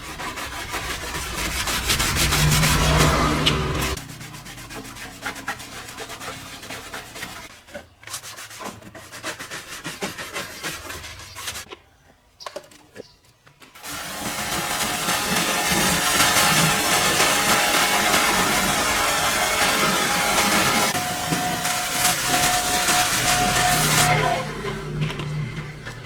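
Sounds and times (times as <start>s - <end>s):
loud steady noise: 0.0s - 5.4s, 13.8s - 26.0s
scrubbing on a surface: 0.0s - 11.7s, 13.8s - 26.0s.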